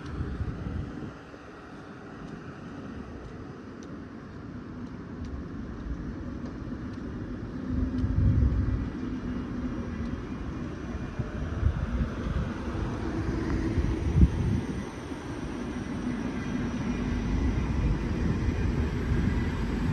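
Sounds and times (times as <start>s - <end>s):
train rumble: 0.0s - 19.9s
light ticks: 1.6s - 2.5s, 3.1s - 9.1s, 9.9s - 10.3s.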